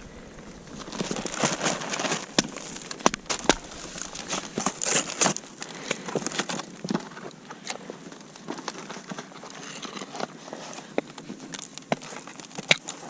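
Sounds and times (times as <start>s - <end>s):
footsteps crunching in snow: 0.0s - 6.6s.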